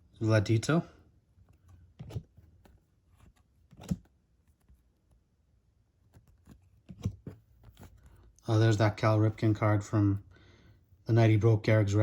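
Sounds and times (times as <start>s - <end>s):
trading cards rustling and clicking: 1.5s - 5.2s.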